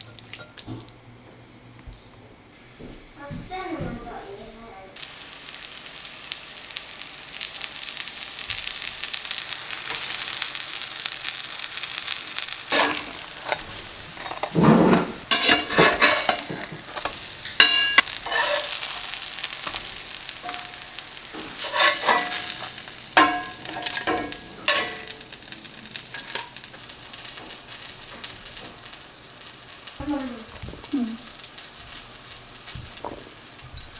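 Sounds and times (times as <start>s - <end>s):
pancakes sizzling in a pan: 5.0s - 33.9s
utensil clinking and scraping pan: 12.7s - 26.8s.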